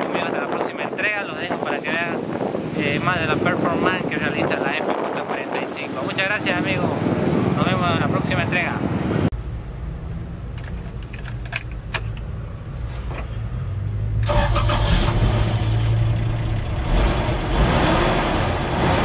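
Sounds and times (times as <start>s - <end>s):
car engine starting and running: 9.4s - 19.0s
keys clicking in ignition: 10.6s - 12.3s.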